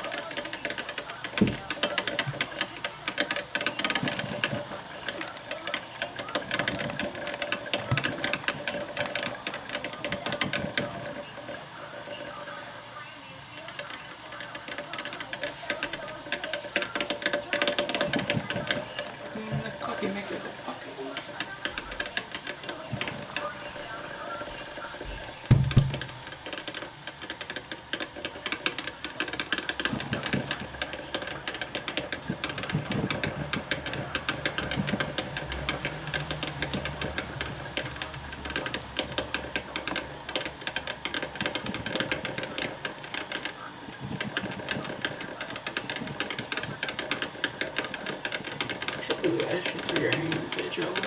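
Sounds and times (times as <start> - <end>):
coffee maker sputtering: 0.0 - 51.0
sharp knock: 25.5 - 26.2.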